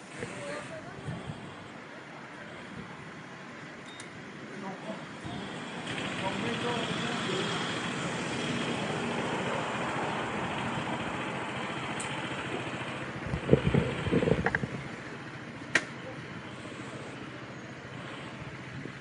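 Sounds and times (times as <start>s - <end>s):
road and traffic noise: 0.0s - 19.0s
sharp click: 15.7s - 16.0s.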